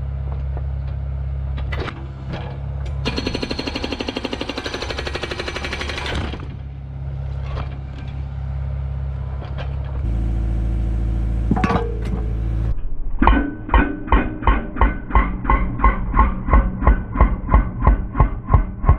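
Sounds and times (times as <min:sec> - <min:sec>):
hydraulic breaker hammering concrete: 0:03.0 - 0:06.6
excavator diesel engine running: 0:05.8 - 0:12.8.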